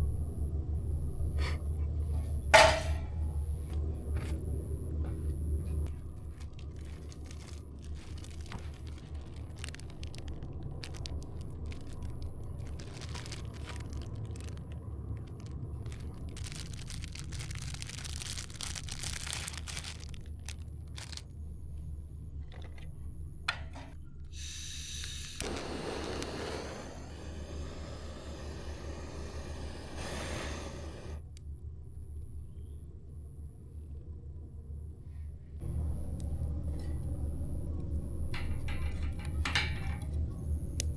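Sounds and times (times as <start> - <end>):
low rumble: 0.0 - 24.3, 25.3 - 40.9
campfire crackling: 5.8 - 21.2, 24.4 - 31.2.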